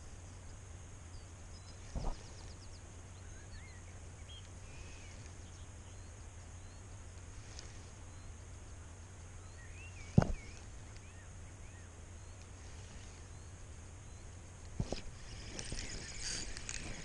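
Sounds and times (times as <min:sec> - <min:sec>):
small birds chirping: 0:00.1 - 0:17.0
sharp thump: 0:10.2 - 0:10.5.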